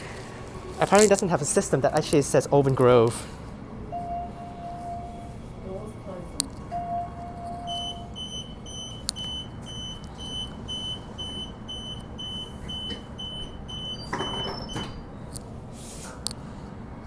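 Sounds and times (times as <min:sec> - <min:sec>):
door warning beeps: 0:03.9 - 0:05.3, 0:06.7 - 0:15.1
doors sliding shut: 0:12.2 - 0:16.2.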